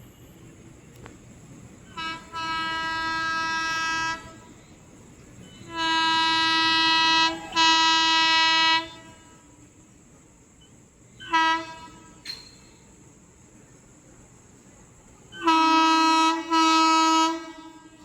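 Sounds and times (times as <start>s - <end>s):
locomotive horn blasts: 1.9s - 4.6s, 5.5s - 9.5s, 11.2s - 12.3s, 15.3s - 18.0s.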